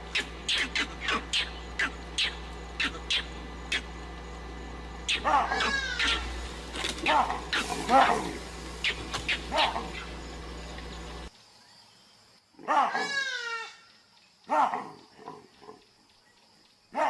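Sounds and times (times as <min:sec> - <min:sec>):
animal whining call: 0:00.0 - 0:04.2, 0:05.0 - 0:10.3
steady low hum: 0:00.0 - 0:11.4.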